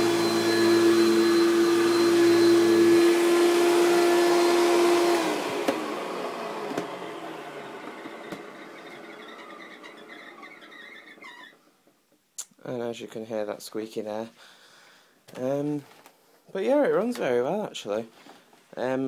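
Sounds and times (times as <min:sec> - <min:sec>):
vacuum cleaner whining: 0:00.0 - 0:11.7.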